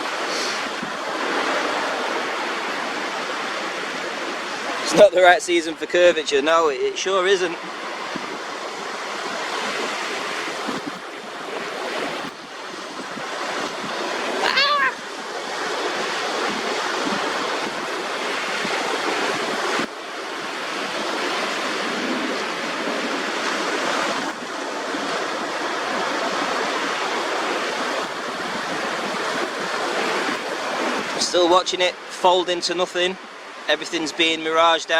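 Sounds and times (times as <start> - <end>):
wind on microphone: 0.0 - 5.2, 7.5 - 31.7
water lapping on sandy shore: 0.0 - 34.9
wavering high-pitched call: 14.4 - 15.1.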